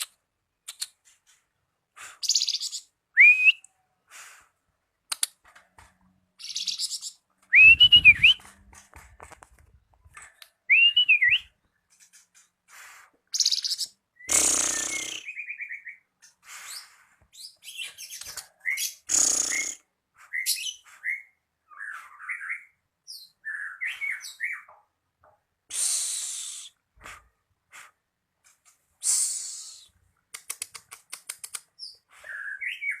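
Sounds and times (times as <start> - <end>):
harsh hissing bird calls: 1.9 - 2.9, 4.1 - 4.6, 12.6 - 15.4, 16.3 - 17.5, 19.0 - 21.2, 25.7 - 28.0, 29.0 - 30.0
songbird chirping and whistling: 2.2 - 3.8, 6.4 - 8.5, 10.6 - 11.8, 13.3 - 24.7, 31.8 - 33.0.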